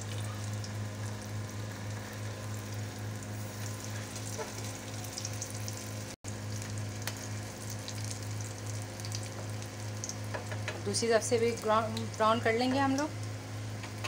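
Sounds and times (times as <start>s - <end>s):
meat sizzling in hot oil: 0.0s - 13.4s.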